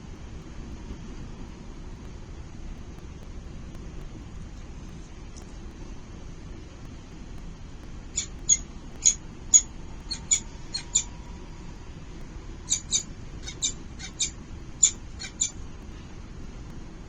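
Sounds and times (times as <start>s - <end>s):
low steady hum: 0.0s - 17.0s
chicks squeaky begging calls: 8.2s - 11.1s, 12.7s - 15.6s.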